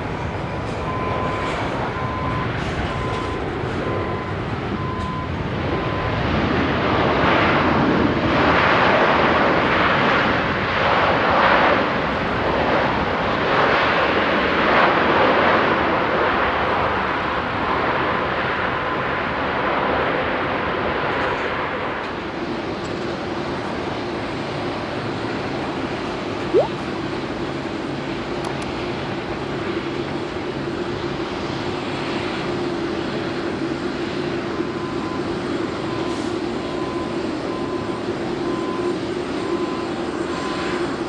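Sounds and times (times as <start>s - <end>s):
jet airliner engines rushing: 21.8s - 41.0s.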